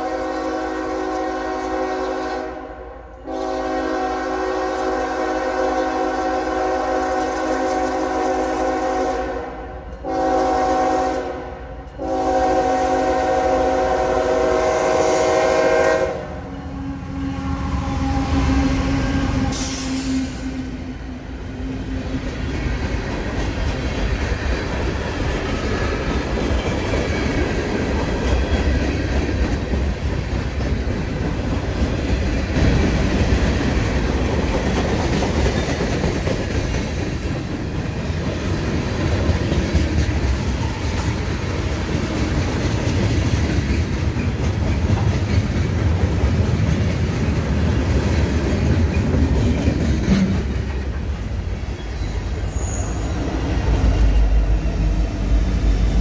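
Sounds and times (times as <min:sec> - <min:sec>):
train wheels clattering over rails: 0:18.5 - 0:56.0.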